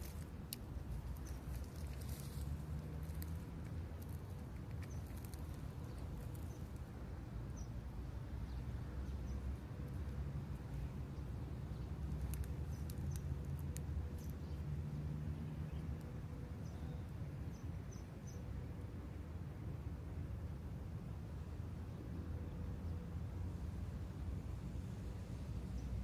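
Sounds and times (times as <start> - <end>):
low outdoor rumble: 0.0 - 17.7.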